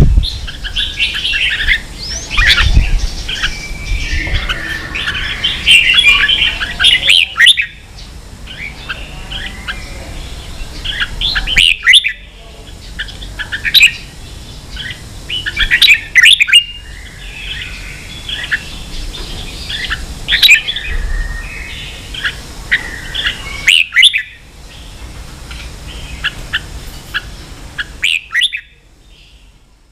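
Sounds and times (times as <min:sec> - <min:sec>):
bird singing chirping phrases: 0:00.0 - 0:29.7.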